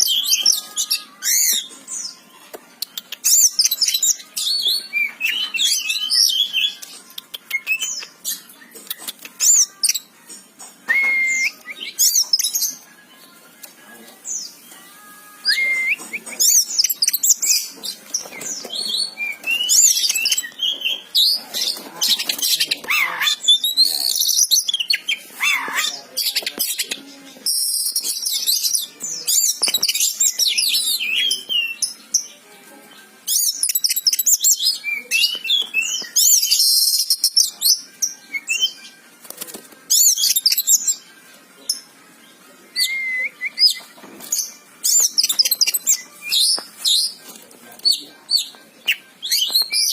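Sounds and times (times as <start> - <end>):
bird singing whistles and trills: 10.9 - 12.7, 15.4 - 21.4, 33.3 - 38.8, 42.7 - 43.9.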